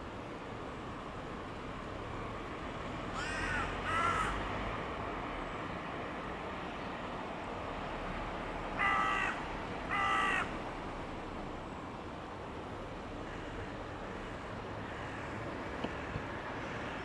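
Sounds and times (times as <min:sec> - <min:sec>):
bird harsh calls: 0:03.2 - 0:04.4, 0:08.8 - 0:10.5.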